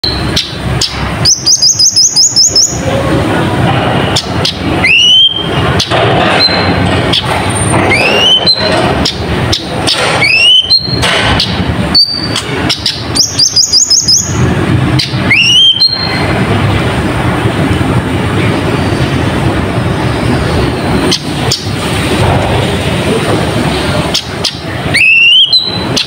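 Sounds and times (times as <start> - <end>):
sunbird chirping: 0.0 - 3.0, 11.9 - 16.4
steady background noise: 0.0 - 26.0.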